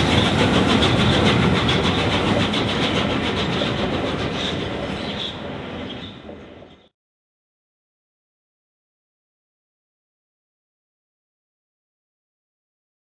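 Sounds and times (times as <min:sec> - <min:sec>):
train wheels clattering over rail joints: 0:00.0 - 0:06.9.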